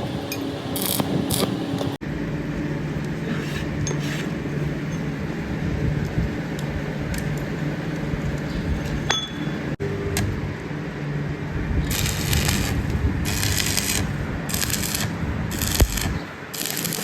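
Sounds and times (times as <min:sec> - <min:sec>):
factory machinery humming: 0:00.0 - 0:17.0
harsh hissing: 0:11.8 - 0:17.0.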